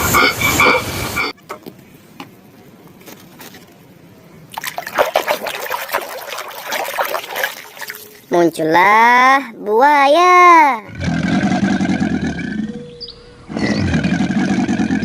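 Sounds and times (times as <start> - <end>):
water trickling and splashing: 4.4 - 8.8.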